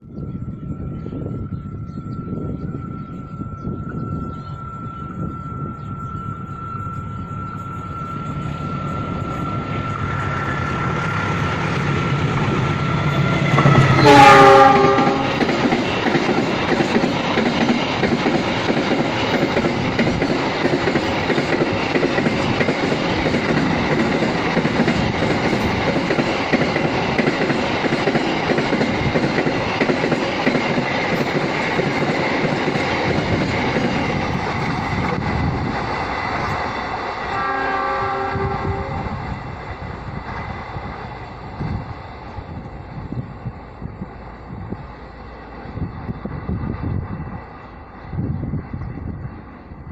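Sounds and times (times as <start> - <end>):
freight train wheels rumbling: 0.0 - 49.9
steady high tone: 0.2 - 40.2
train horn: 13.0 - 15.6, 37.2 - 39.2.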